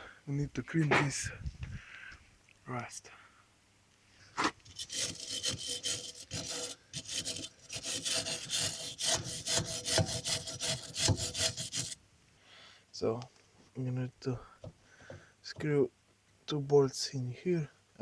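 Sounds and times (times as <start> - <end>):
scrubbing rust off metal: 4.7 - 12.0.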